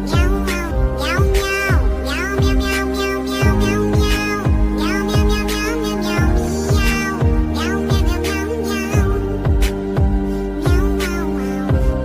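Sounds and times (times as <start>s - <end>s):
synth chords: 0.0s - 12.0s
kick drum beat: 9.0s - 10.9s.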